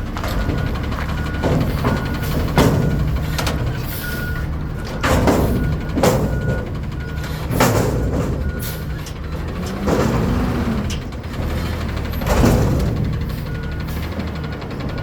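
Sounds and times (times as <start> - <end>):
garbage truck engine running: 0.0 - 15.0
faint reversing alarm beeping: 0.2 - 9.6, 13.1 - 15.0.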